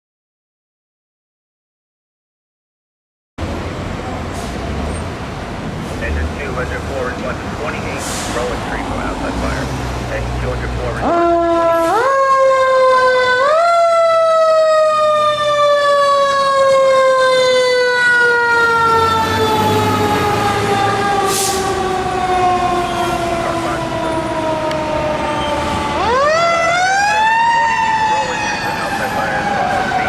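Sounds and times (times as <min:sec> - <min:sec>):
fire engine siren wailing: 0:06.0 - 0:30.0.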